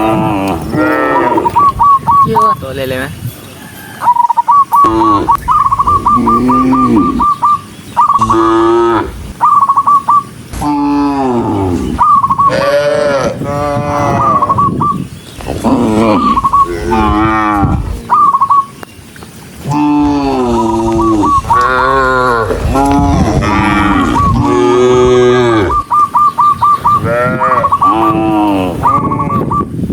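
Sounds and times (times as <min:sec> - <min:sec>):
cattle mooing: 0:00.0 - 0:01.6, 0:06.0 - 0:07.4, 0:08.2 - 0:09.2, 0:10.6 - 0:14.6, 0:15.5 - 0:18.1, 0:19.6 - 0:25.8, 0:27.0 - 0:29.5.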